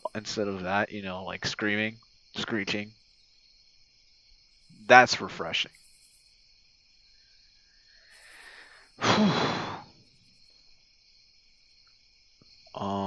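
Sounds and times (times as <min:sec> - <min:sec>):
crickets chirping: 0:00.0 - 0:13.0
man sighing: 0:08.3 - 0:10.0.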